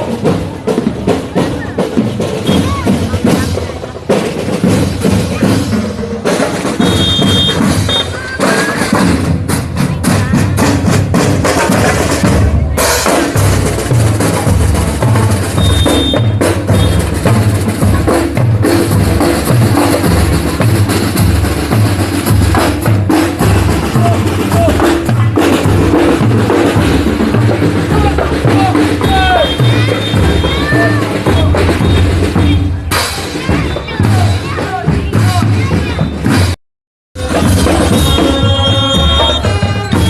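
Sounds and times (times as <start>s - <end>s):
bass drum beat: 0.0s - 36.6s, 37.2s - 40.0s
snare drum strokes and rolls: 0.0s - 36.6s, 37.2s - 40.0s
high whistle-like tone: 15.6s - 17.0s, 37.9s - 40.0s.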